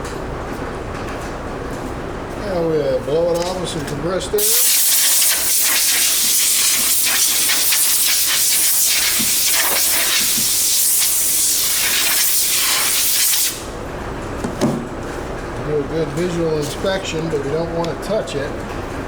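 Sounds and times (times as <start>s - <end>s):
air blow gun hissing: 4.4s - 13.7s.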